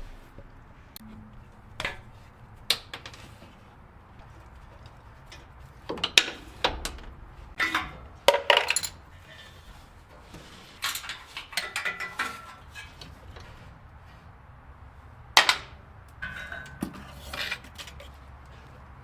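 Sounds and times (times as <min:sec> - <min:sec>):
metal tools knocking and clinking: 0:04.8 - 0:09.1, 0:10.8 - 0:13.1, 0:15.4 - 0:18.1.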